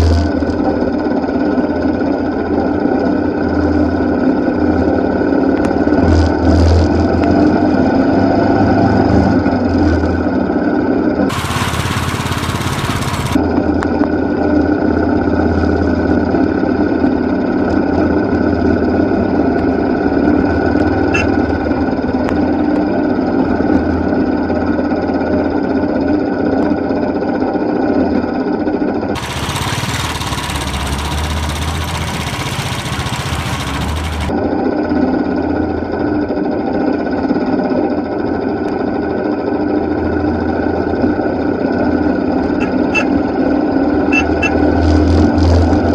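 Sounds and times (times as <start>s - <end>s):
motorcycle engine running: 0.0s - 8.2s, 11.2s - 24.5s, 29.2s - 34.4s, 40.4s - 45.9s.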